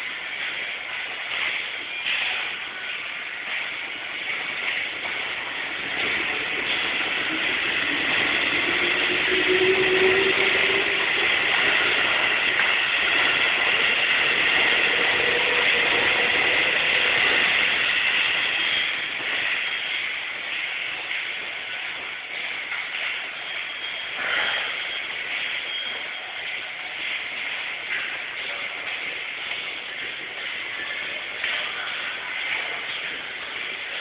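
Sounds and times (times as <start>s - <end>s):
electric train passing: 0.0s - 34.0s
rising tone: 6.9s - 13.8s.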